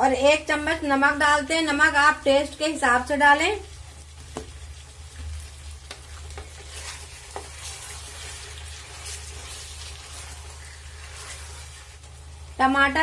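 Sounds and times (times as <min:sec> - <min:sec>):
food sizzling in a pot: 0:00.0 - 0:13.0
wooden spoon stirring: 0:03.9 - 0:12.2.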